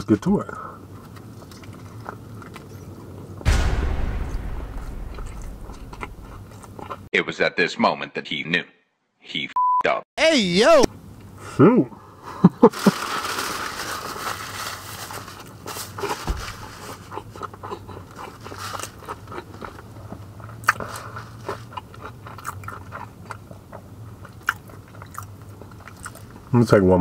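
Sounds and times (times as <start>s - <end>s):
crunchy chewing: 0.8s - 3.2s, 15.4s - 26.5s
short sharp loud sounds: 3.5s - 6.8s.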